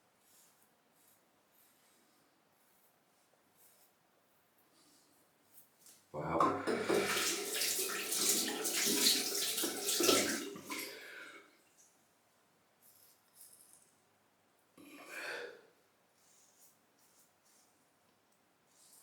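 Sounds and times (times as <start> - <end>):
rinsing knocks: 6.4 - 10.9
tap water splashing into sink: 6.4 - 11.0.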